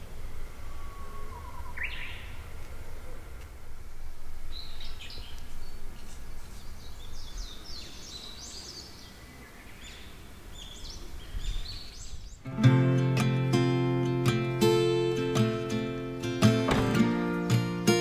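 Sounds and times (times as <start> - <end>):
low rumbling background noise: 0.0 - 12.4
small birds chirping: 0.0 - 13.4
acoustic guitar piece: 12.4 - 18.0.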